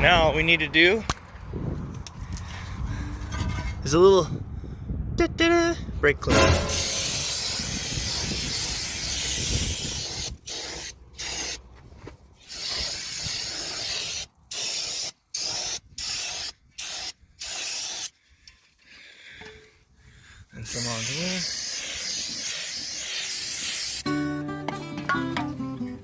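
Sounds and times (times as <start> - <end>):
aerosol can spraying: 6.7 - 11.6, 12.5 - 18.1, 20.8 - 24.0.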